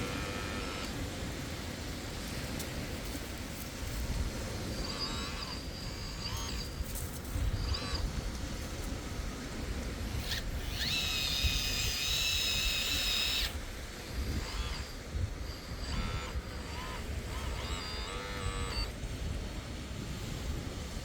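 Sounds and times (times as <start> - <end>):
hydraulic pump whining: 0.0 - 1.0, 4.5 - 18.9.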